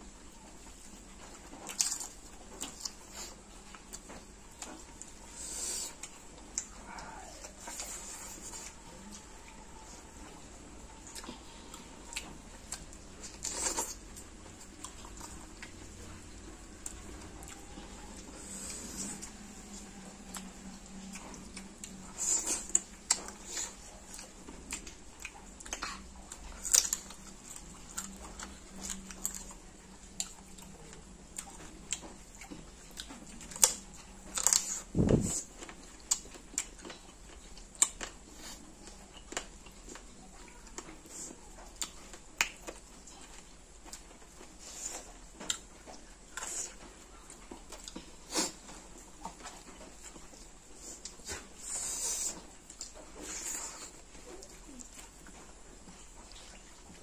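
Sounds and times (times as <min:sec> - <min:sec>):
wet chewing and lip smacks: 0:16.8 - 0:40.1.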